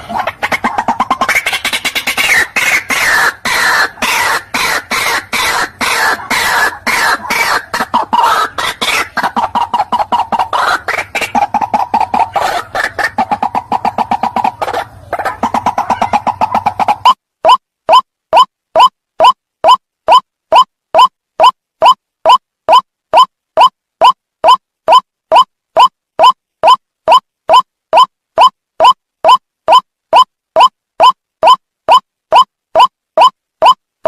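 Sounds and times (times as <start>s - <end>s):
waterhen harsh repeated calls: 0.0s - 33.8s.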